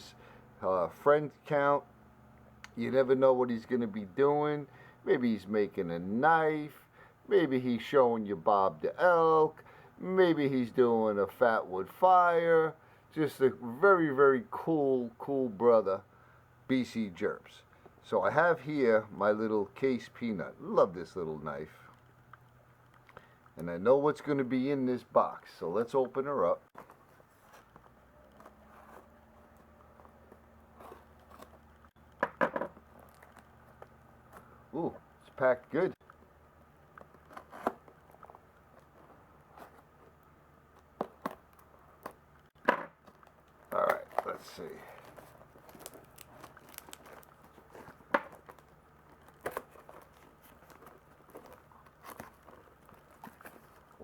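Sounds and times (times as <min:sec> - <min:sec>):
faint steady hum: 0:00.0 - 0:54.0
packing material crinkling: 0:32.8 - 0:54.0.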